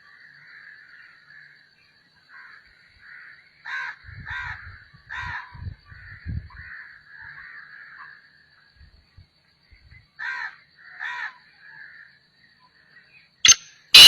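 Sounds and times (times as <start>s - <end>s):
bird harsh cawing calls: 2.3s - 8.2s, 10.2s - 12.1s, 13.5s - 14.0s.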